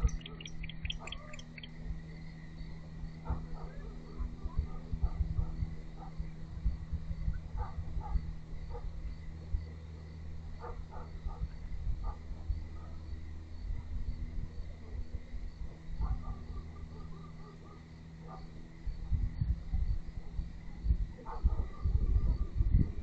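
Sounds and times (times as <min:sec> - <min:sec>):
insect chirping: 0:00.0 - 0:04.3
low rumble and hum: 0:00.0 - 0:23.0.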